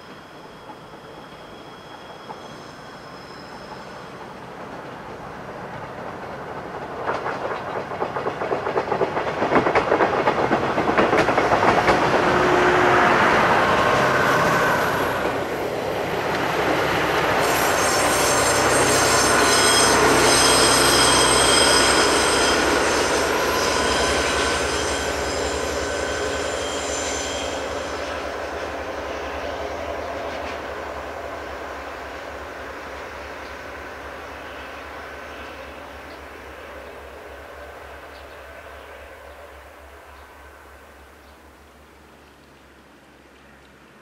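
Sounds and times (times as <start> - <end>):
wheel squeal: 0.0 - 4.2, 17.4 - 28.2
diesel locomotive running: 0.0 - 38.1
wheels clicking over rail joints: 4.2 - 12.2.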